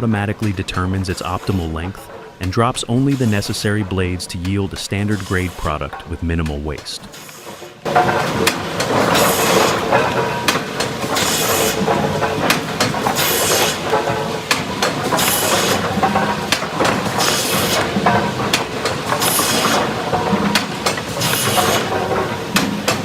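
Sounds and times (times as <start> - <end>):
boards clattering on conveyors: 0.0 - 23.0
hissing bursts: 1.1 - 6.2, 11.0 - 20.0, 20.6 - 22.0.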